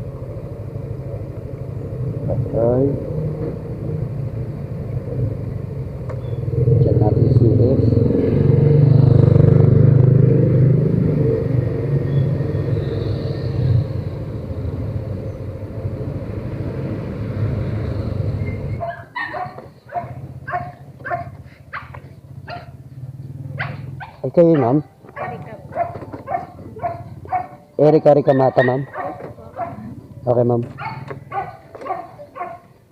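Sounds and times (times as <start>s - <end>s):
dog barking: 18.8s - 22.8s, 23.6s - 29.9s, 30.7s - 32.8s.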